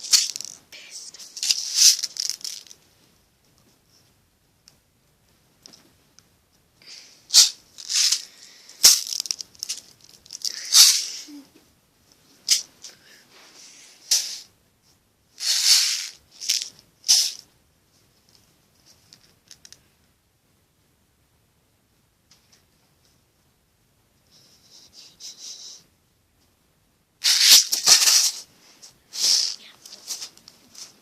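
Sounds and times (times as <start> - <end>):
pin toy pins rattling: 0.0 - 0.6, 1.2 - 2.8, 7.3 - 11.0, 15.4 - 17.4.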